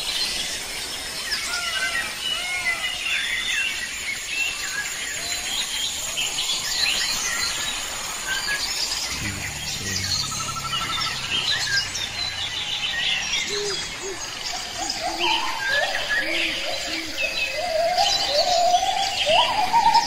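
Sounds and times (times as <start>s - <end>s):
small birds chirping: 0.0s - 20.0s
low rumble: 9.1s - 15.1s.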